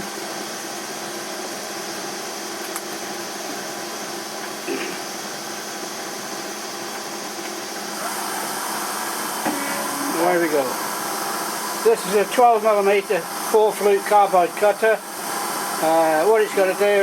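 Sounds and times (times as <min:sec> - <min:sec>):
milling machine running: 0:05.6 - 0:17.0
thin high whine: 0:08.0 - 0:15.0.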